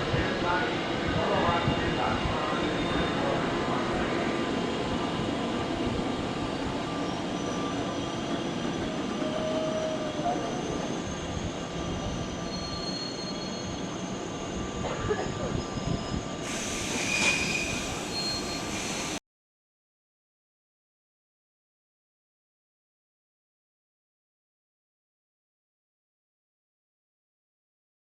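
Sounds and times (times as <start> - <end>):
wheel and brake squeal: 2.6 - 3.4, 6.9 - 19.2.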